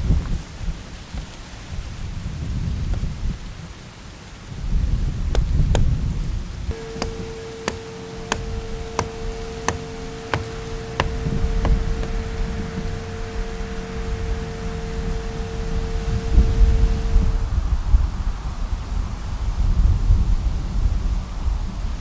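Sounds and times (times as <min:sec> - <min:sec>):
sharp clicks: 0:06.7 - 0:17.3
steady tone: 0:06.7 - 0:17.6.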